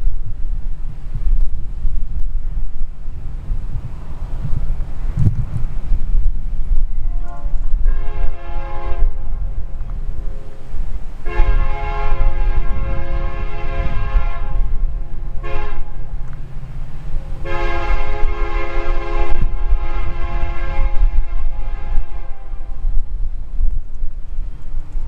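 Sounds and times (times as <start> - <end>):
low rumble: 0.0 - 25.0
locomotive air horn blasts: 6.9 - 9.6, 11.2 - 16.2, 17.4 - 22.9.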